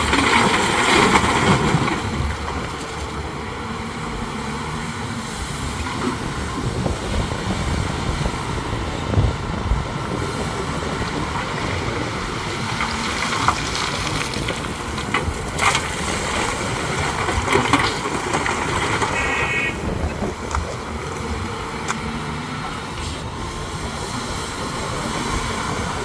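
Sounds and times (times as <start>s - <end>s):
heavy diesel machinery running: 0.0s - 26.0s.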